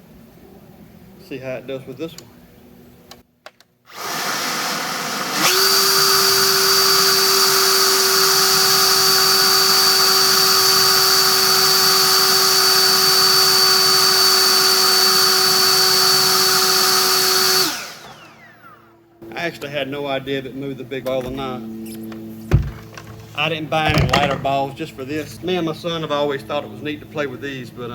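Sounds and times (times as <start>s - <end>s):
leaf blower running: 3.9s - 19.3s.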